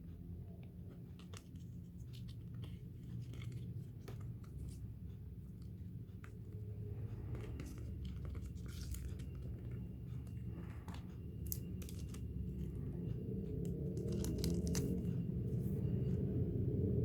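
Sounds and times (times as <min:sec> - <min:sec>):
steady low hum: 0:00.0 - 0:17.0
packaging crinkling and tearing: 0:07.6 - 0:09.5, 0:14.0 - 0:15.1.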